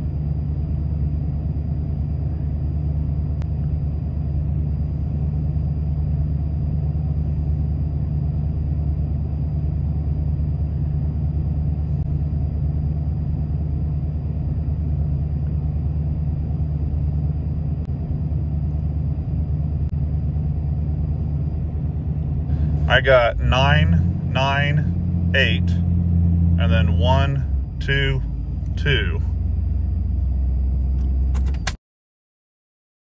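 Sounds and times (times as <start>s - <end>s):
truck engine idling: 19.0s - 31.6s.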